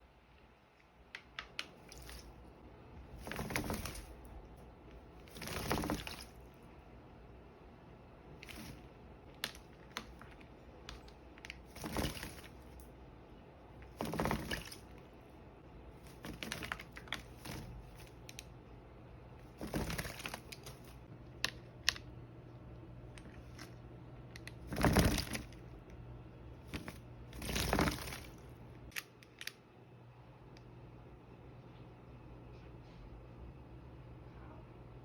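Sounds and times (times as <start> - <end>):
small clicks and taps: 1.1 - 1.8
bird splashing water: 1.5 - 6.7, 8.2 - 13.0, 13.6 - 15.3, 15.9 - 18.5, 19.4 - 21.1, 26.6 - 28.5.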